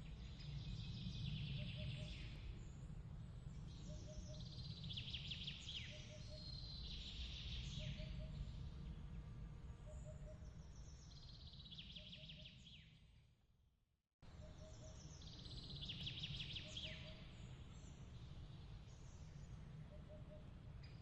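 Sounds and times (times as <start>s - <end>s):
bird chirps and trills: 14.4s - 21.0s.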